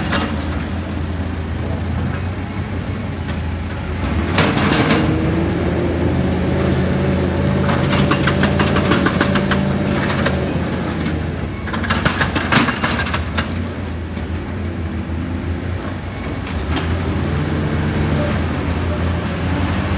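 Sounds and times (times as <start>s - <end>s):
clattering crunching rock impacts: 0.0s - 18.5s
excavator diesel engine: 0.0s - 19.9s
hydraulic whine: 0.0s - 19.9s.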